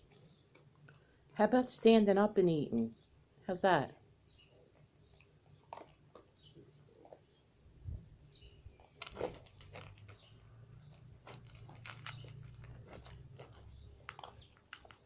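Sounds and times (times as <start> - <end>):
puppy chewing food: 0.0 - 1.4, 4.0 - 7.7, 8.7 - 15.0.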